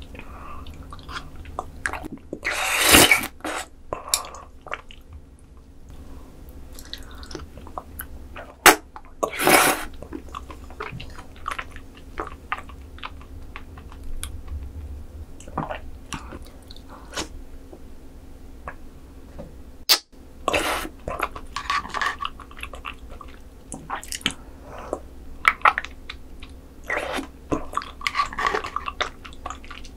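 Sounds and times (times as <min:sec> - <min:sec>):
wet slurping: 0:02.4 - 0:03.7
chewing: 0:09.9 - 0:14.6.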